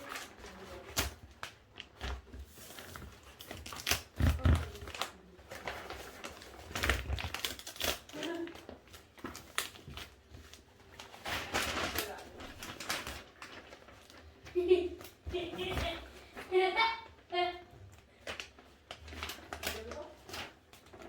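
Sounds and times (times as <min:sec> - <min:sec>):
cardboard tapping and rustling: 0:00.1 - 0:07.9.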